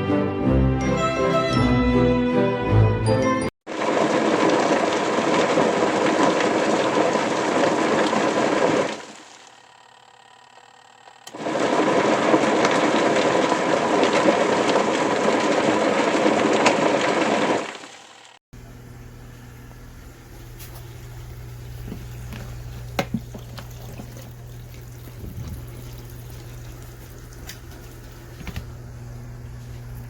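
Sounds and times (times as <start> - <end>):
washing machine motor running: 3.7 - 30.0.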